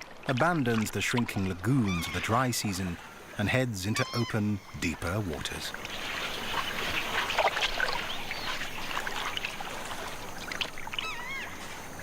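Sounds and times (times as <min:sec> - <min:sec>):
river water splashing and lapping: 0:00.0 - 0:12.0
warbling call: 0:01.8 - 0:03.2, 0:03.8 - 0:04.9, 0:05.9 - 0:11.6.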